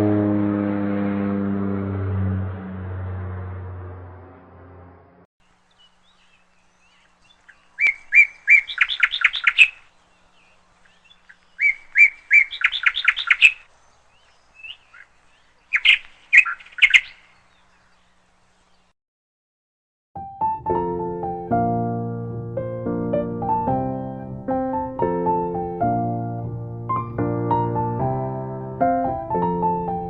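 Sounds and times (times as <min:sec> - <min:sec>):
songbird singing with trills: 0:05.6 - 0:18.9.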